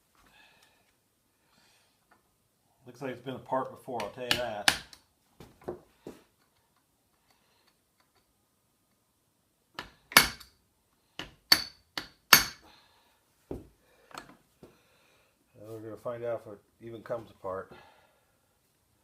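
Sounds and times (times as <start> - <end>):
hammer striking metal: 11.5 - 12.6.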